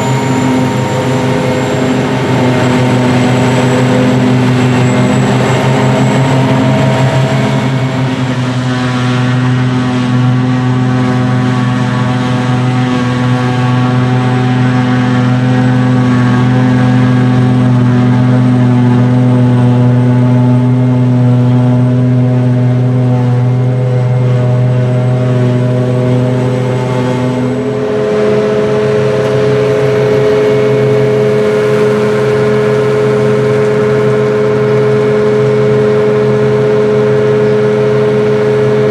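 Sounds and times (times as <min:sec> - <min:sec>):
diesel engines running: 0:00.0 - 0:38.9
higher steady engine tone: 0:00.0 - 0:38.9.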